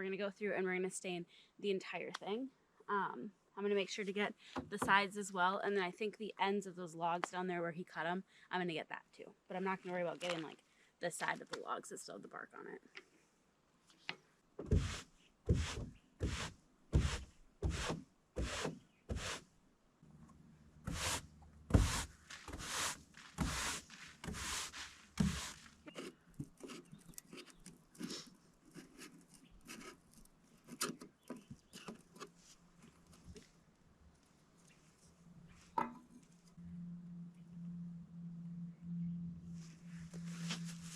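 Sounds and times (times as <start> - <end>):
broom sweeping wooden deck: 14.6 - 19.4, 20.8 - 26.9, 39.8 - 40.9.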